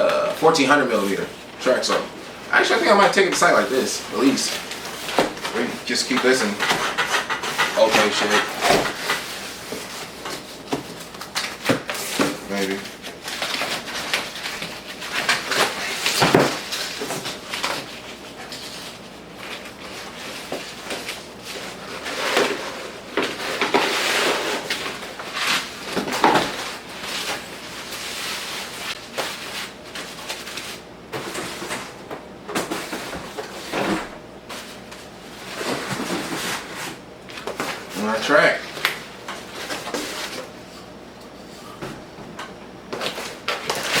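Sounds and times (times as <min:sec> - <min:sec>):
rubbing and rustling: 0:00.3 - 0:32.0, 0:32.6 - 0:41.8.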